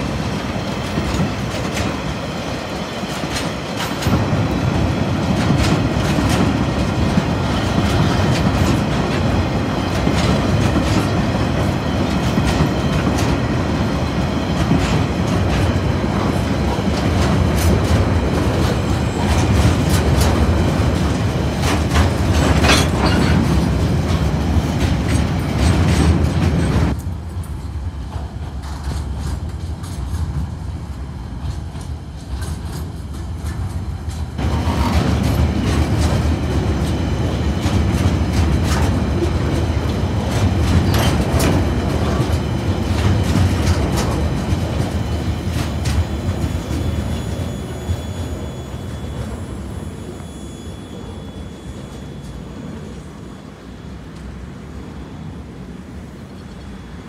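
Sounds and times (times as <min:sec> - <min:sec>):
train wheels rumbling on rails: 0:00.0 - 0:57.0
wheels clicking over rail joints: 0:14.5 - 0:30.6, 0:37.6 - 0:47.5.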